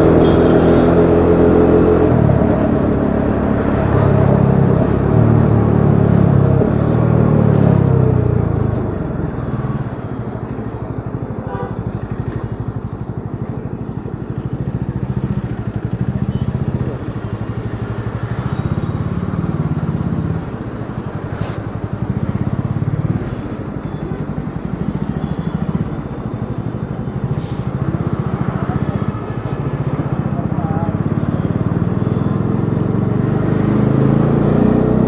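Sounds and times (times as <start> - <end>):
motorcycle engine revving: 0.0 - 35.0
wind and road noise: 0.0 - 35.0.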